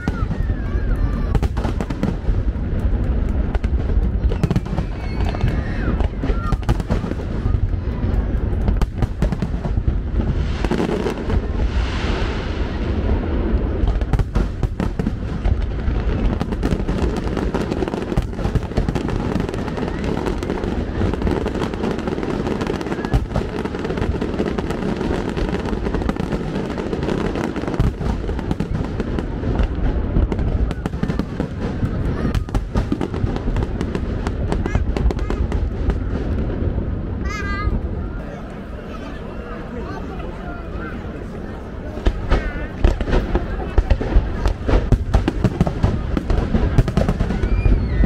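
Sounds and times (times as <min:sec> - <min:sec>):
steady low boom: 0:00.0 - 0:17.0
fireworks bursting: 0:00.0 - 0:38.9, 0:39.5 - 0:48.0.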